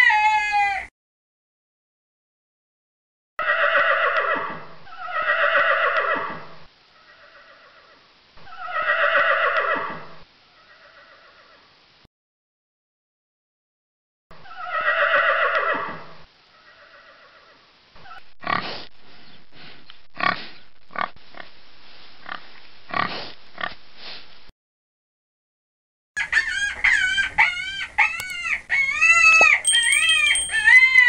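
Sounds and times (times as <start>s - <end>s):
horse whinny: 3.4s - 6.4s, 14.4s - 16.1s
chicken calls: 26.2s - 31.0s.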